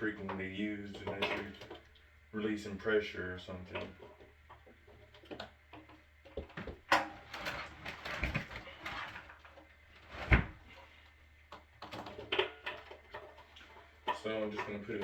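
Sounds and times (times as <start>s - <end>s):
pipe scraping: 11.8s - 15.0s.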